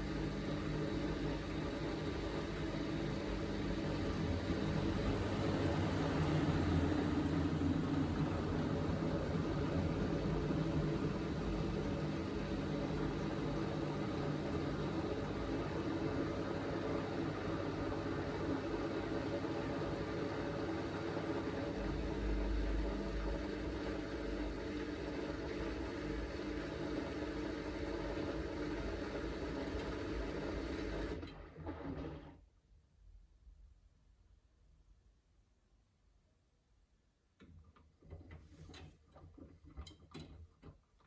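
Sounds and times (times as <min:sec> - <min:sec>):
washing machine spinning: 0:00.0 - 0:32.3.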